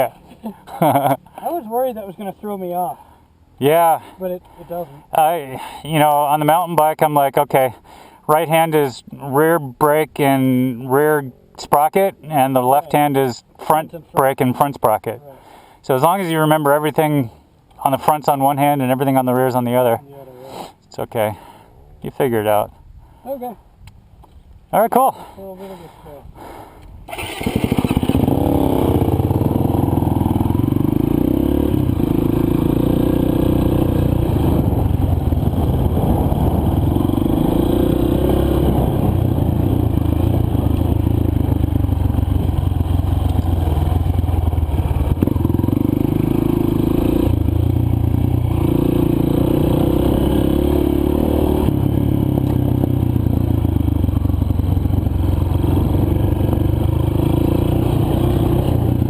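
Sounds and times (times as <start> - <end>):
dirt bike engine revving: 27.1 - 59.0.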